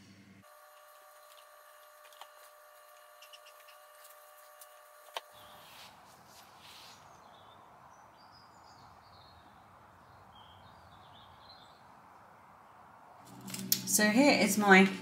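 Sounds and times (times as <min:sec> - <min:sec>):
small birds chirping: 0:05.2 - 0:06.0, 0:06.6 - 0:12.9.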